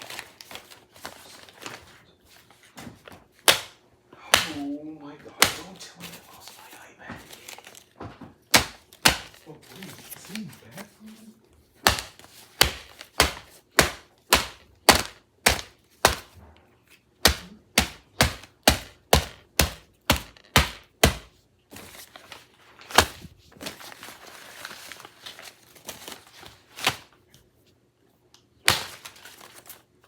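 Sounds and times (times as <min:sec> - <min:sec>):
hand striking paper laptop: 0:03.0 - 0:04.7, 0:05.4 - 0:06.2, 0:08.5 - 0:10.4, 0:11.8 - 0:16.4, 0:17.2 - 0:23.9, 0:28.6 - 0:29.8.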